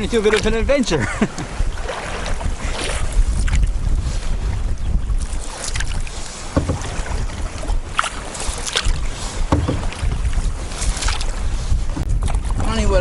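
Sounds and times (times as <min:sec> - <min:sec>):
paddle strokes splashing water: 0:00.0 - 0:13.0
wind rumbling on microphone: 0:00.0 - 0:13.0.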